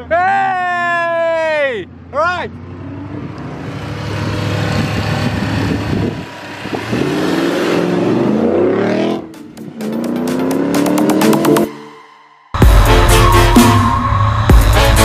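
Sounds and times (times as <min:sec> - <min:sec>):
car engine revving hard: 0:02.6 - 0:11.7.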